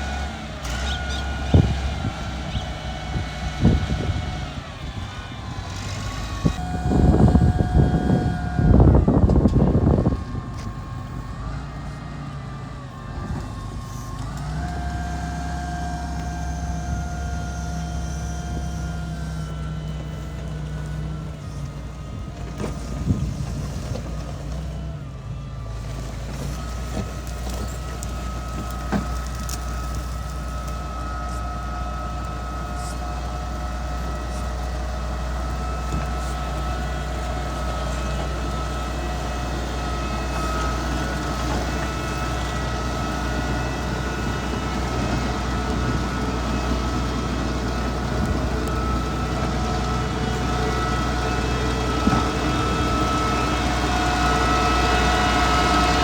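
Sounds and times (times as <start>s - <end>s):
diesel engine running: 0.0s - 56.0s
steady whine: 0.6s - 22.3s.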